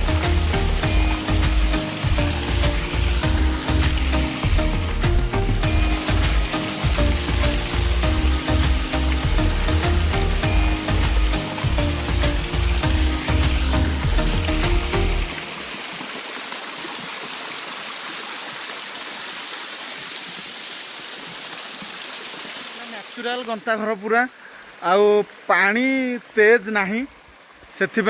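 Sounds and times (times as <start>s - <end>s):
background music with steady beat: 0.0s - 15.6s
waterfall rushing: 0.0s - 28.0s.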